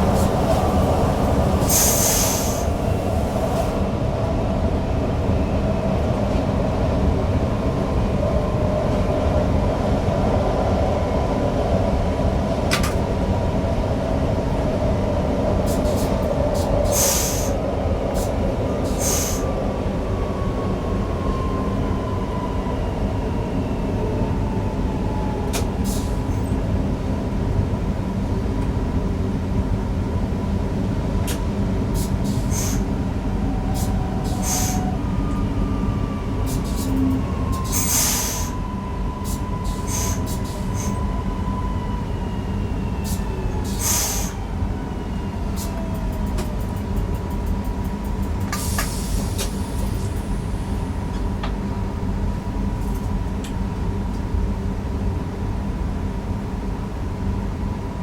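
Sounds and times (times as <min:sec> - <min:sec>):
train rolling rumble: 0:00.0 - 0:58.0
brief hisses: 0:32.0 - 0:32.8, 0:43.8 - 0:44.4.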